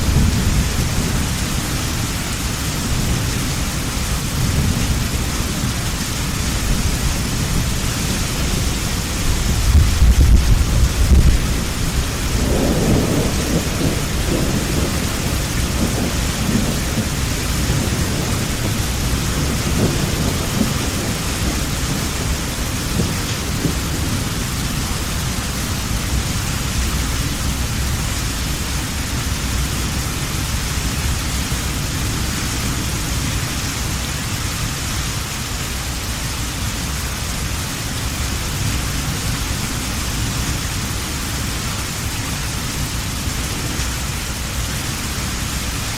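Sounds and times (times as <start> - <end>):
thunder rumbling: 0.0 - 34.0
heavy rain falling: 0.0 - 45.9.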